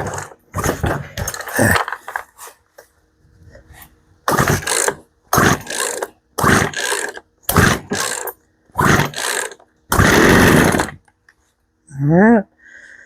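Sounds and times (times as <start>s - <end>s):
chainsaw recoil starter pulls: 0.0s - 2.0s, 4.3s - 11.1s.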